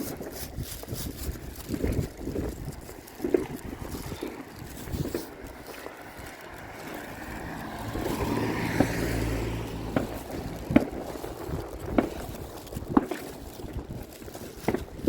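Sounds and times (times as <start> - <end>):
wind on microphone: 0.0 - 15.0
distant fireworks bangs: 9.8 - 11.3.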